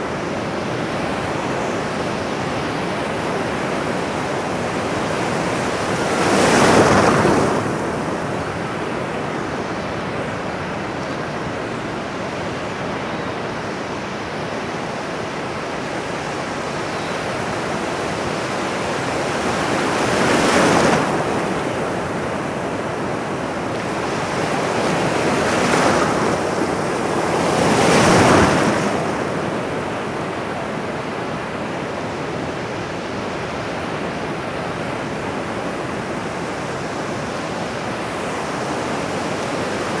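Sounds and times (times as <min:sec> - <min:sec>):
ocean waves breaking: 0:17.5 - 0:31.6.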